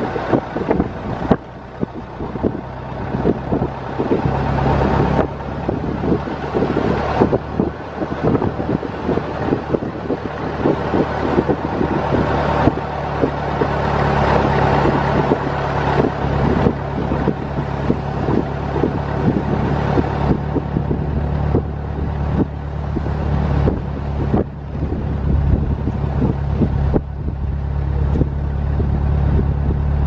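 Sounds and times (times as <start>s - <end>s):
car rattles and knocks: 0.0s - 30.0s
old car engine running: 0.0s - 30.0s
wind buffeting microphone: 0.0s - 30.0s.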